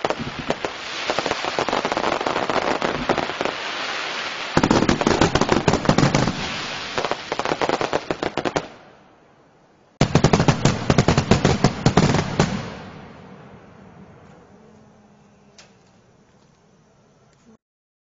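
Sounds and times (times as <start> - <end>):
fireworks bangs and crackles: 0.0 - 9.0, 10.0 - 14.5.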